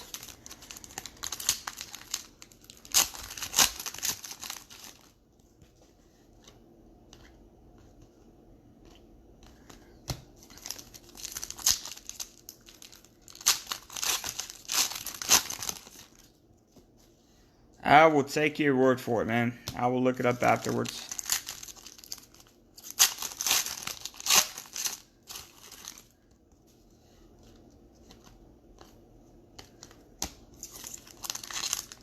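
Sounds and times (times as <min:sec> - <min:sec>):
plastic wrapper crinkling and tearing: 0:00.0 - 0:05.2, 0:10.4 - 0:16.4, 0:20.4 - 0:26.6, 0:27.4 - 0:32.0.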